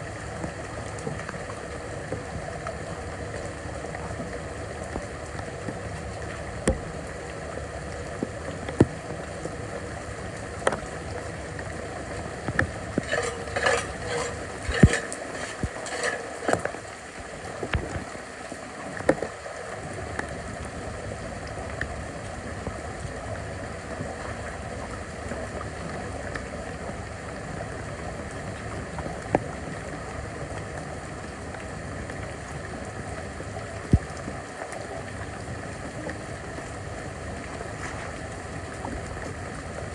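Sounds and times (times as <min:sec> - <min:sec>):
floodwater running: 0:00.0 - 0:39.9
clattering: 0:13.0 - 0:16.7.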